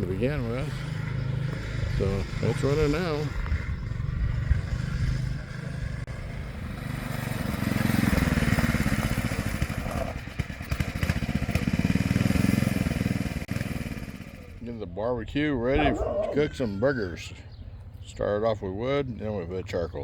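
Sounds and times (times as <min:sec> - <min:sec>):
small motorbike engine revving: 0:00.0 - 0:14.6.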